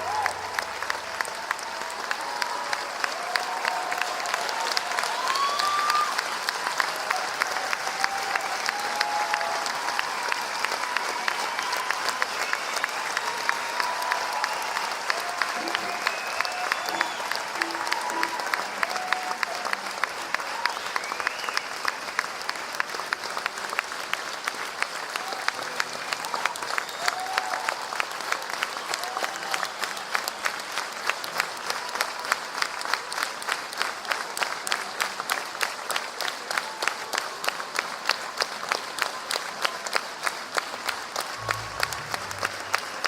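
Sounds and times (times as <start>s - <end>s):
crowd shouts: 0.0s - 21.1s
crowd applauding: 0.0s - 43.0s
whistles: 15.8s - 17.8s, 20.8s - 22.0s, 26.6s - 27.4s.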